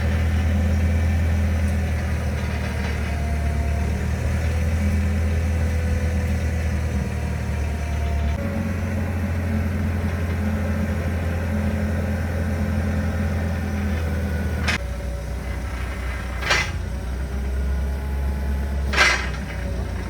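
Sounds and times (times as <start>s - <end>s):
forklift engine running: 0.0s - 20.0s.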